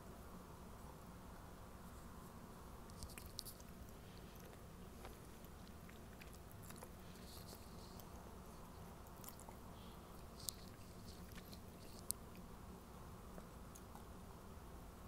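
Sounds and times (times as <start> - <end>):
low steady hum: 0.0 - 15.0
soft chewing mouth clicks: 2.9 - 12.5, 13.3 - 14.2.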